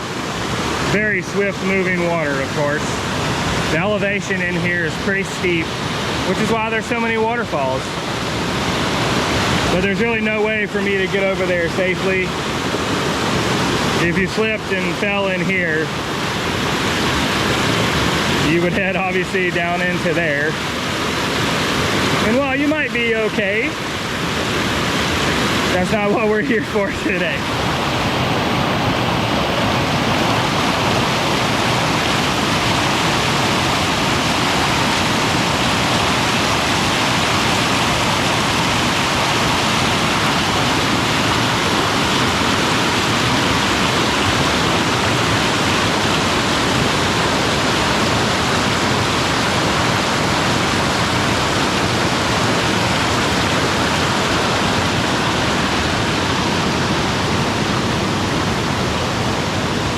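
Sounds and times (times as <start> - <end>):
waterfall and creek rushing: 0.0 - 59.9.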